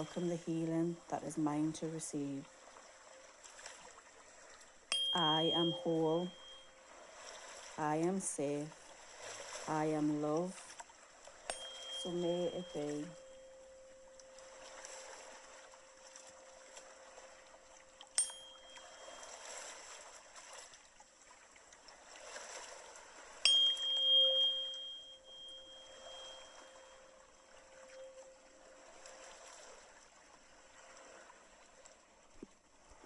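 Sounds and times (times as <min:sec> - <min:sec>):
tuning fork humming: 0:00.0 - 0:01.1, 0:04.9 - 0:07.0, 0:11.3 - 0:19.9, 0:23.4 - 0:29.4
running water: 0:00.0 - 0:33.0
tuning fork strike ping: 0:04.9 - 0:06.8, 0:11.5 - 0:16.9, 0:17.7 - 0:19.4, 0:23.4 - 0:28.6.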